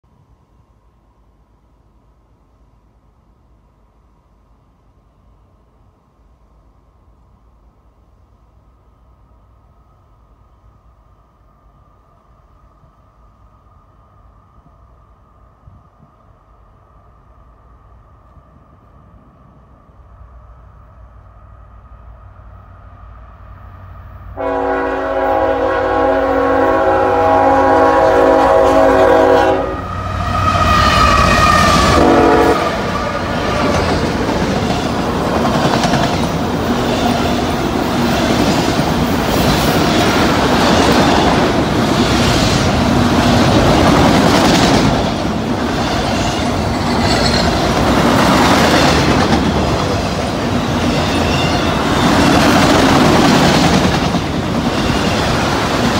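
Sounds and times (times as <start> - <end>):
locomotive horn blast: 24.4 - 32.9
train wheels clacking on rails: 30.9 - 55.9.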